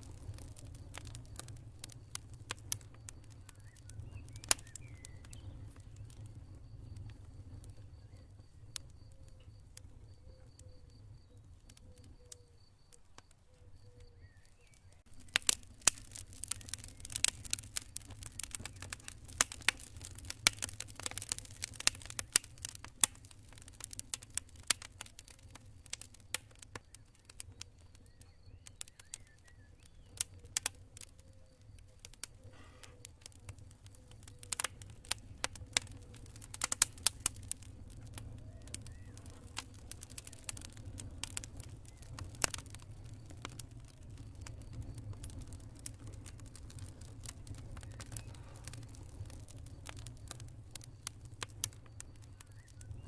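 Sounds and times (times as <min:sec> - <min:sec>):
cricket chirping: 0:00.0 - 0:20.0
campfire crackling and popping: 0:00.0 - 0:53.0.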